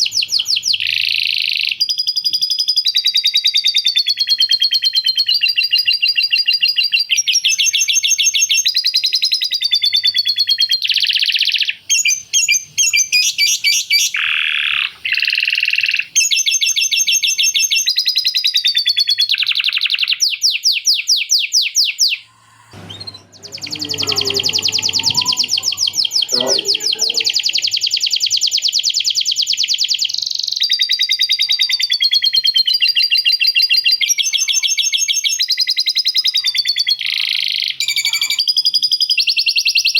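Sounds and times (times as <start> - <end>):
canary singing trills: 21.6 - 39.9
lower rough sound: 22.3 - 27.6.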